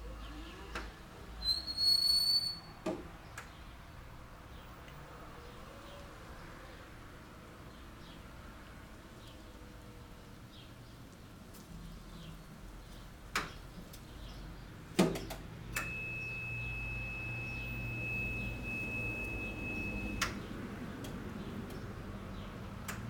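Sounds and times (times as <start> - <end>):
steady high-pitched tone: 15.8 - 20.2.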